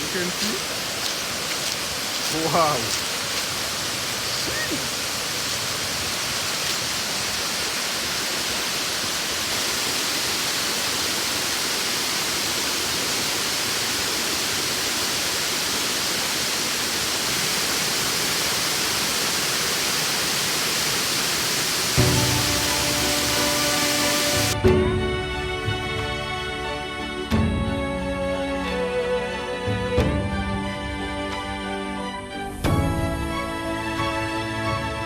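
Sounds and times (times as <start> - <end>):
waterfall rushing: 0.0 - 24.6.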